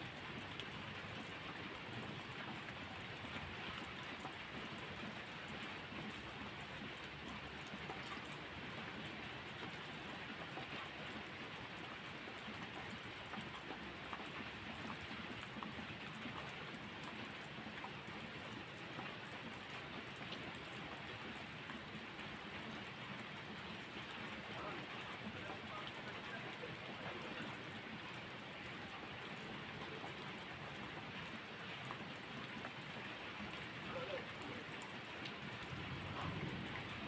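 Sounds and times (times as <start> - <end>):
raindrop ticks: 0.1 - 37.0
steady rainfall hiss: 22.4 - 31.8, 32.6 - 37.0.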